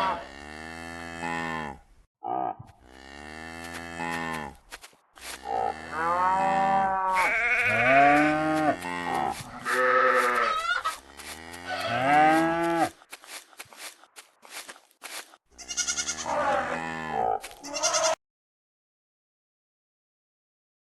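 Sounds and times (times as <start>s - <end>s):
farm animals bleating: 0.0s - 4.6s, 5.2s - 13.0s, 15.5s - 18.2s.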